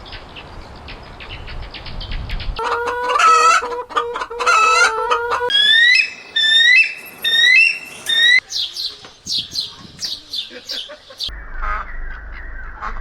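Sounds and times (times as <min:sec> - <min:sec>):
harsh pulsing bird calls: 0:04.4 - 0:13.0.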